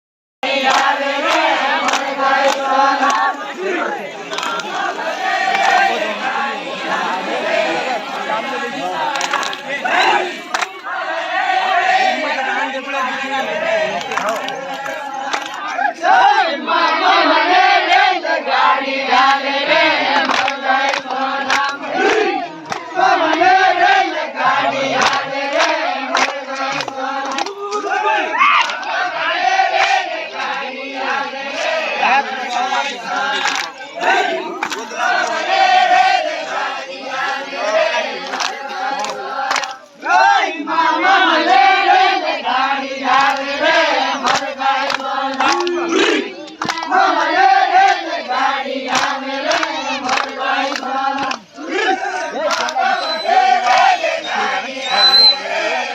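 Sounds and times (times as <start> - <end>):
sharp claps: 0.4 - 7.0, 8.8 - 11.0, 13.7 - 15.8, 19.2 - 28.0, 28.6 - 29.0, 29.7 - 36.6, 37.2 - 40.0, 43.1 - 51.6, 52.4 - 54.4
group singing in unison: 0.4 - 55.9.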